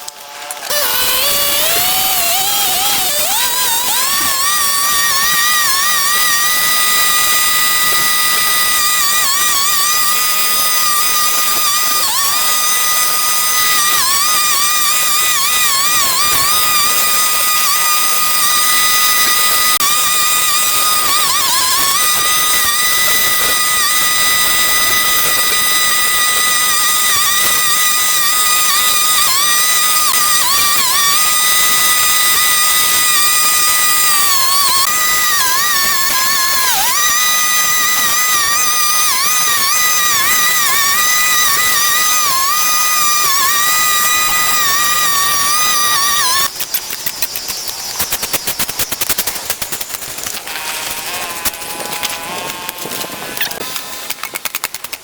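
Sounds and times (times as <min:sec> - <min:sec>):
two-stroke cutting tool engine whining: 0:00.0 - 0:55.0.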